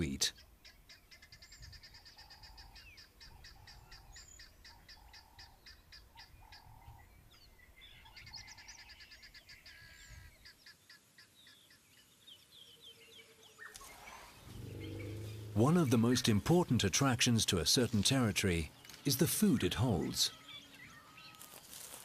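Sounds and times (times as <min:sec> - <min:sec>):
lower bird call: 0:13.6 - 0:16.2
high bird chirping: 0:13.6 - 0:16.4.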